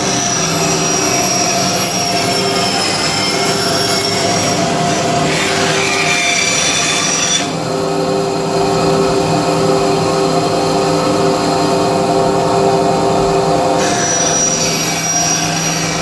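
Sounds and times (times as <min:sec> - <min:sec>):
bandsaw cutting plywood: 0:00.0 - 0:07.7, 0:13.8 - 0:16.0
motor hum: 0:00.0 - 0:16.0.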